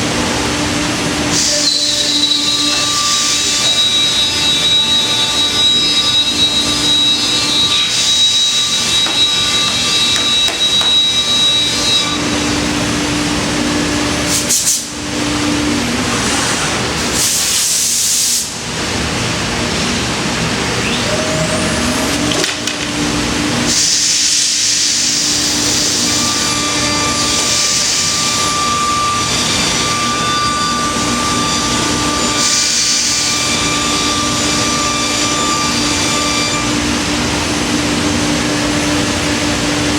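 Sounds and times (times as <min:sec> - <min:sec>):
router spindle cutting wood: 0:01.4 - 0:12.8.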